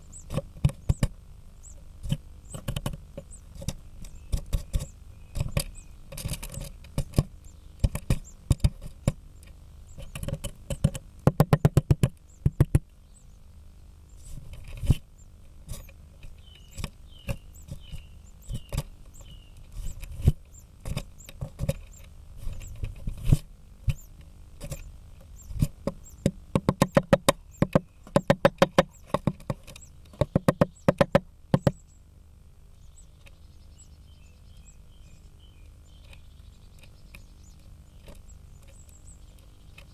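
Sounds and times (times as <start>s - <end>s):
woodpecker hammering on wood: 9.9s - 12.9s, 23.9s - 31.9s.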